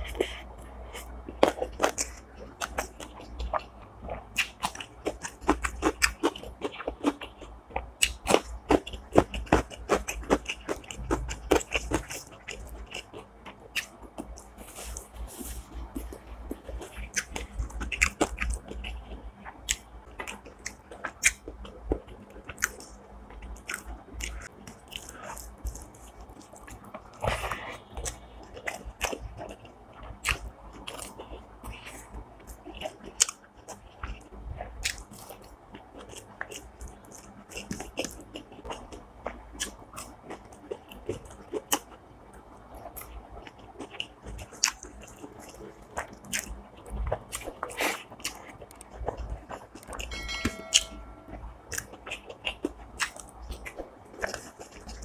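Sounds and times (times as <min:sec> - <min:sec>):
person chewing crunchy food: 0:00.0 - 0:55.0.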